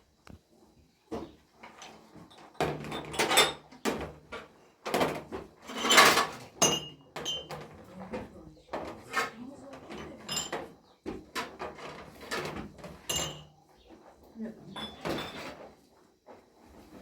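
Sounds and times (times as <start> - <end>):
objects scraping and knocking: 1.1 - 17.0.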